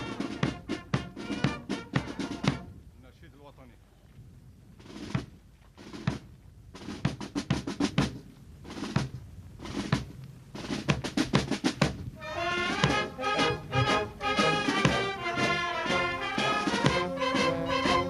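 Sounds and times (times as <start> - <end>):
snare drum rolls: 0.0 - 2.7, 4.8 - 18.0
brass instruments holding notes: 0.0 - 2.8, 12.2 - 18.0.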